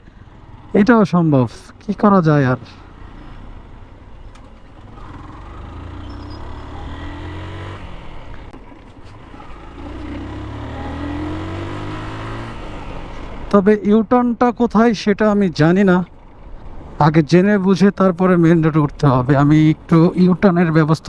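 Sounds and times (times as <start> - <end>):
motorcycle engine accelerating: 0.0 - 13.6
road and wind noise: 0.0 - 21.0.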